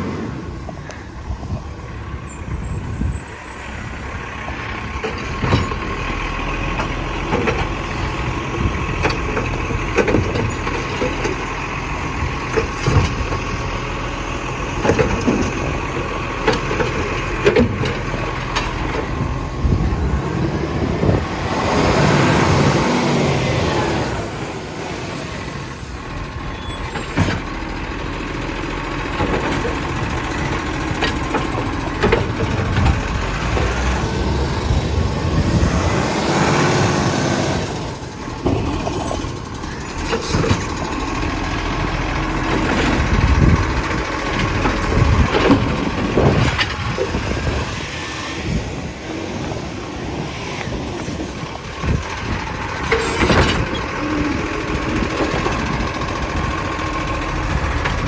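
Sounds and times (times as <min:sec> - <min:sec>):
garbage truck running: 0:00.0 - 0:58.0
clunks and knocks: 0:04.8 - 0:13.8, 0:14.6 - 0:21.4, 0:26.7 - 0:36.3, 0:37.6 - 0:48.7, 0:50.6 - 0:58.0.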